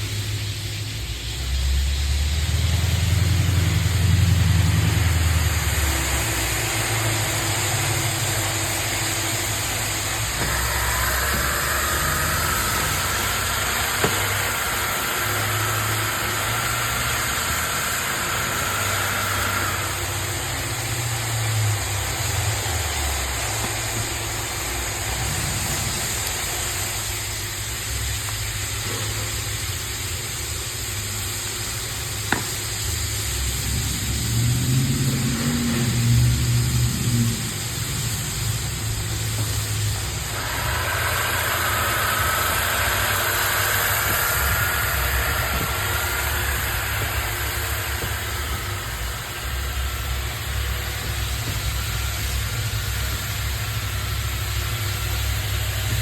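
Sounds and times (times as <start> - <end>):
floor grinding machine running: 0.0 - 56.0
high whine: 0.0 - 56.0.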